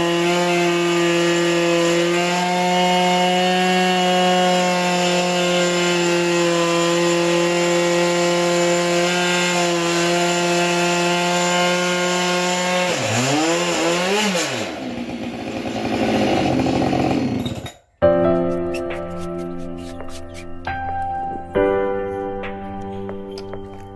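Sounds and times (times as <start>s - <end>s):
chainsaw cutting a log: 0.0s - 17.8s.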